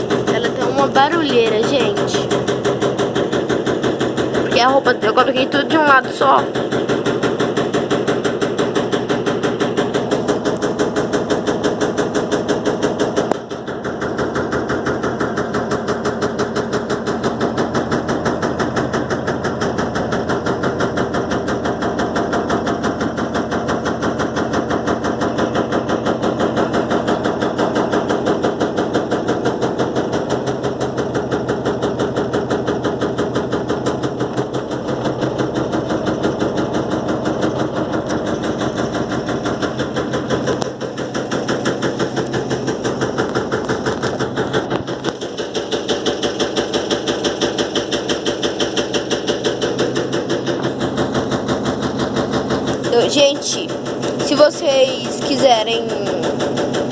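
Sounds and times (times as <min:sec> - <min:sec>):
washing machine drum knocking: 0:00.0 - 0:56.9.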